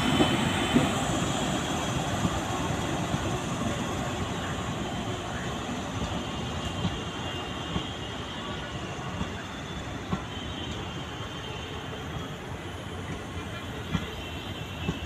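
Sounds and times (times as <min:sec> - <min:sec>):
train wheels on track: 0:00.0 - 0:15.0
short train clanks: 0:12.9 - 0:15.0.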